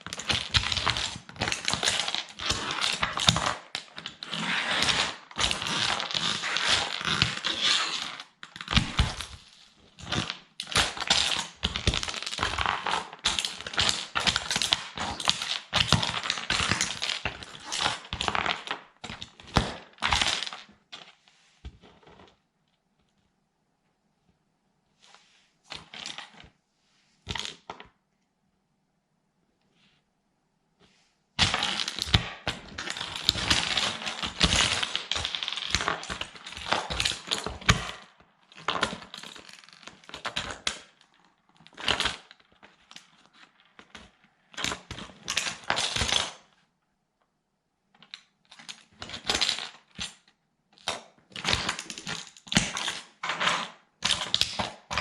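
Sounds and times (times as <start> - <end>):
plastic toy cracking and crunching: 0.0 - 21.1, 31.4 - 46.5, 48.0 - 55.0.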